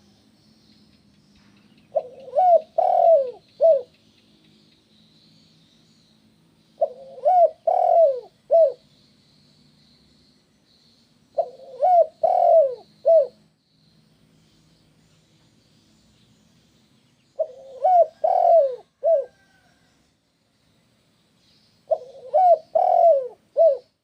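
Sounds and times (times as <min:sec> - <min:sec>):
faint steady high hiss: 0:00.0 - 0:18.0, 0:18.6 - 0:24.0
dove cooing: 0:01.9 - 0:04.0, 0:06.8 - 0:08.8, 0:11.4 - 0:13.4, 0:17.4 - 0:19.7, 0:21.9 - 0:24.0.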